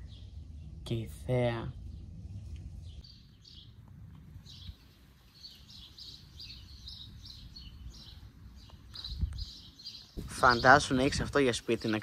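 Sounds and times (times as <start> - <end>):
faint low rumble: 0.0 - 5.7
bird chirping: 0.0 - 12.0.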